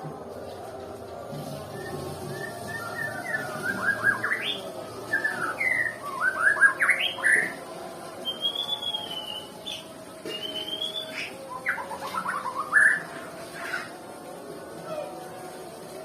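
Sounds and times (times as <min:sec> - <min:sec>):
bird singing chirps and whistles: 0:01.7 - 0:07.6, 0:08.2 - 0:13.1.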